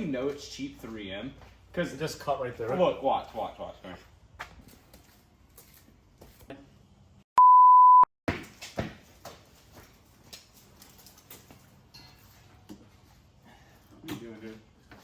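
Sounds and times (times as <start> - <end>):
censor bleep: 7.4 - 8.1.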